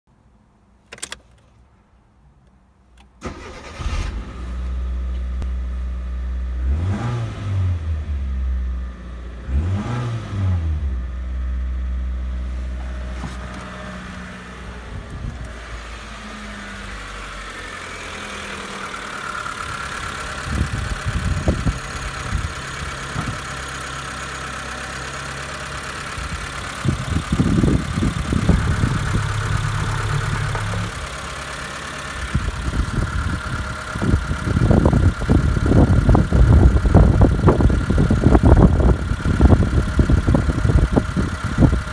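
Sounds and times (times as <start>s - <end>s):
car engine starting and idling: 3.0s - 41.9s
bumps and rubbing near microphone: 12.7s - 14.0s.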